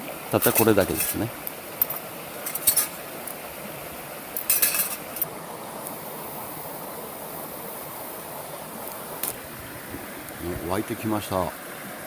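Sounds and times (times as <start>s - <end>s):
steady soft hiss: 0.0s - 12.0s
metallic clinks of cookware: 1.8s - 3.0s, 4.4s - 5.3s.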